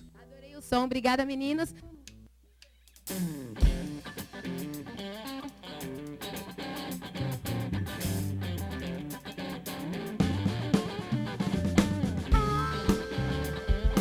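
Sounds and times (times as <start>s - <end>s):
electric guitar riff: 3.1s - 14.0s
low bass notes: 11.5s - 14.0s.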